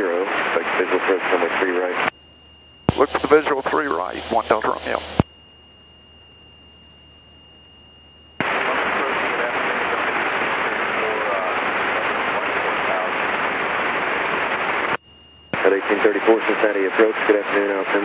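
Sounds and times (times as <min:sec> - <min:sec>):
garbled radio voice: 0:00.0 - 0:02.1, 0:02.9 - 0:05.2, 0:08.4 - 0:13.2, 0:15.6 - 0:18.0
radio static rush: 0:00.0 - 0:02.2, 0:02.9 - 0:05.3, 0:08.4 - 0:18.0
high-pitched whine: 0:00.0 - 0:18.0
low hum: 0:00.0 - 0:18.0.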